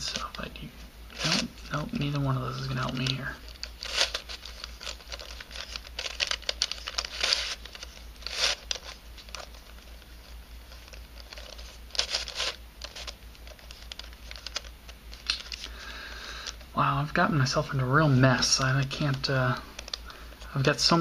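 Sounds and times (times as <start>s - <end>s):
puzzle pieces clicking and scraping: 2.1s - 15.7s.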